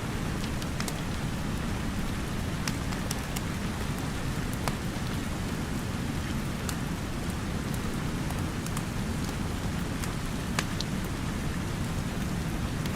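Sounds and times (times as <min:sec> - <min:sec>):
steady rain hiss: 0:00.0 - 0:12.9
wood fire crackles: 0:06.5 - 0:10.9.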